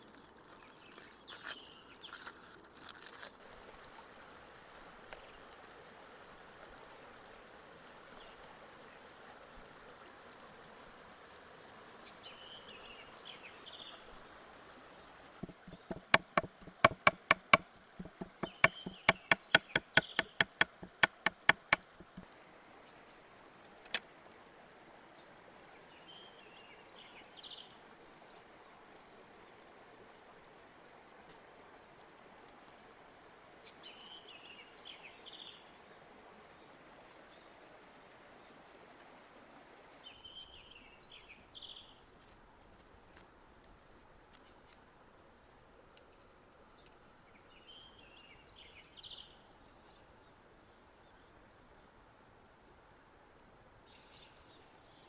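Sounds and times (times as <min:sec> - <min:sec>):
faint outdoor hiss: 0:00.0 - 0:55.0
bird chirping song: 0:15.4 - 0:25.3.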